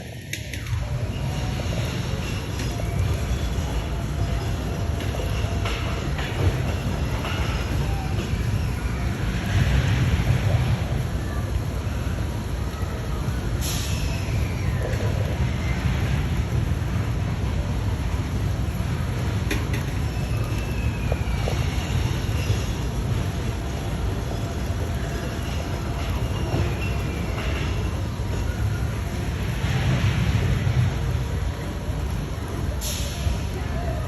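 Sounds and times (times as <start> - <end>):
steady low rumble: 14.2 - 34.0.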